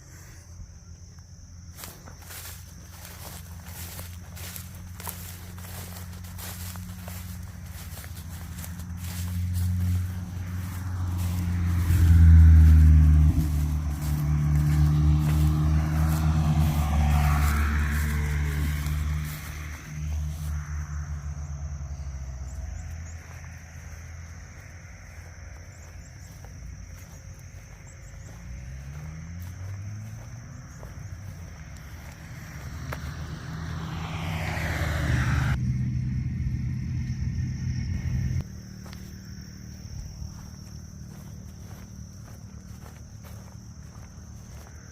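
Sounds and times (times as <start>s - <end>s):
vehicle engine running: 1.6s - 44.9s.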